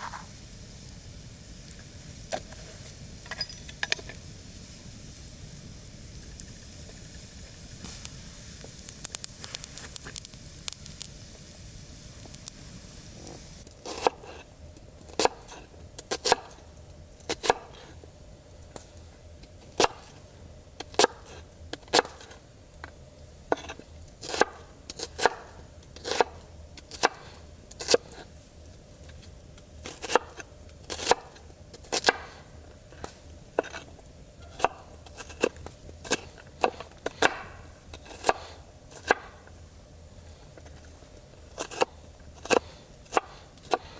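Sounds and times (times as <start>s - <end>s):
campfire crackling: 0.0s - 13.9s
chopping on a hard surface: 32.0s - 32.4s, 34.5s - 39.4s.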